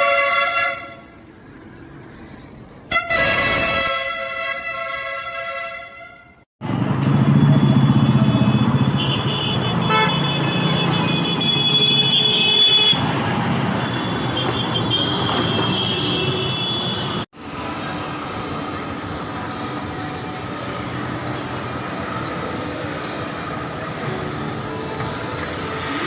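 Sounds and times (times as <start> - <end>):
road traffic: 0.0 - 26.0
heavy vehicle engine running: 6.6 - 11.4, 17.1 - 26.0.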